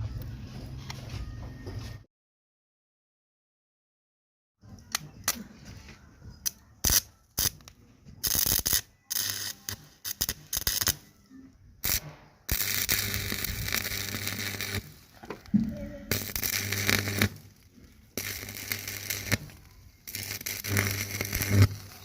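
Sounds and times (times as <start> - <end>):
electric arc crackling: 6.8 - 11.1, 11.8 - 22.0.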